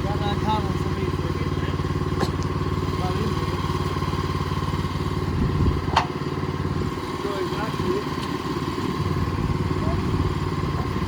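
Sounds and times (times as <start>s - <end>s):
sawmill engine running: 0.0s - 11.0s.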